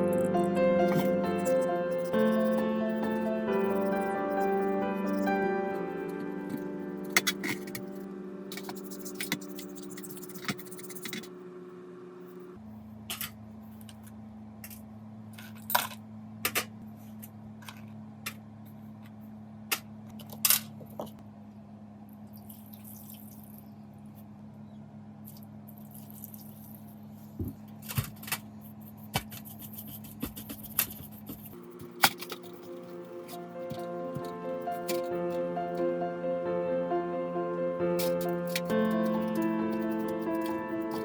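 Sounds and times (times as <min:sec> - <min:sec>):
steady low hum: 0:00.0 - 0:15.2, 0:26.8 - 0:41.0
metal parts and tools clinking: 0:06.5 - 0:11.3, 0:31.4 - 0:35.3.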